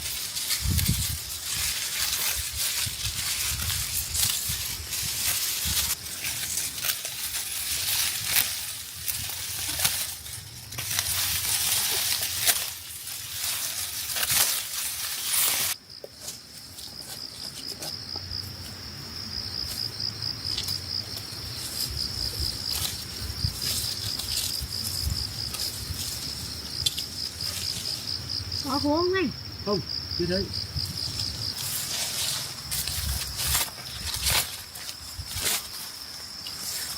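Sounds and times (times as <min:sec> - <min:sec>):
dry rice stalks rustling: 0:00.0 - 0:29.1, 0:30.6 - 0:36.9
insects trilling: 0:00.0 - 0:36.9.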